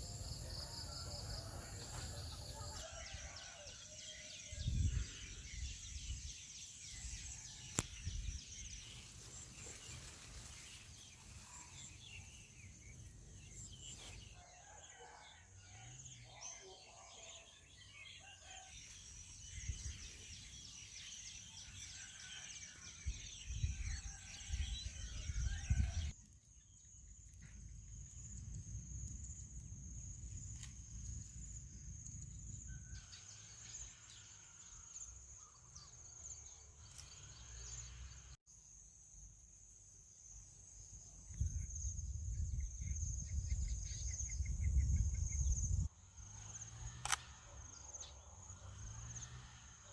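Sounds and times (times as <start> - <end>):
rooster crowing: 0.4 - 4.2
wind rumbling on microphone: 4.4 - 8.8, 23.0 - 26.2, 41.3 - 45.9.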